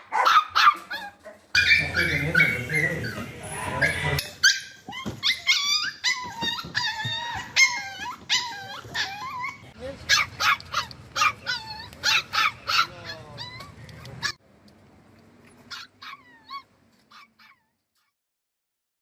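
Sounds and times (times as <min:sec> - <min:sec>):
dogs whining and yelping: 0:00.2 - 0:14.4, 0:15.6 - 0:18.1.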